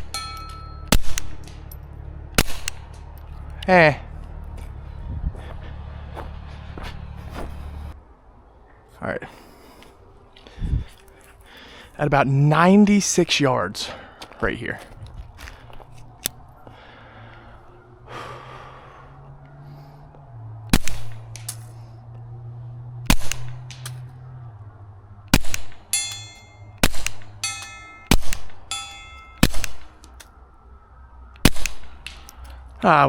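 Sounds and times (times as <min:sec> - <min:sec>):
steel target ringing: 0:00.0 - 0:01.1, 0:25.7 - 0:29.9
suppressed pistol shots: 0:00.9 - 0:01.6, 0:02.4 - 0:02.9, 0:20.7 - 0:21.7, 0:23.1 - 0:24.1, 0:25.3 - 0:28.6, 0:29.3 - 0:30.0, 0:31.4 - 0:32.3.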